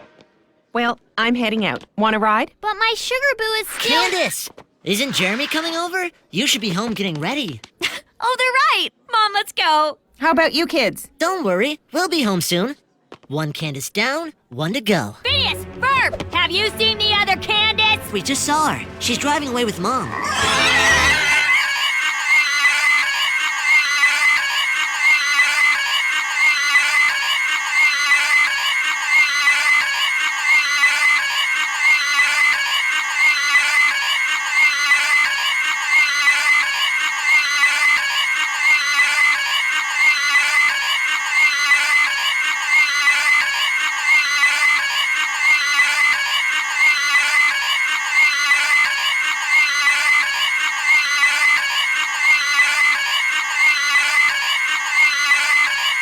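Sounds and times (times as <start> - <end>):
cartoon pig squealing: 20.1 - 56.0.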